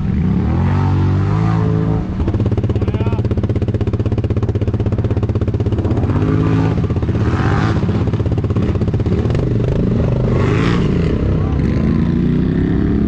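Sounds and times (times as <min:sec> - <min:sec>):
engines revving: 0:00.0 - 0:13.0
atv engine idling: 0:02.0 - 0:13.0.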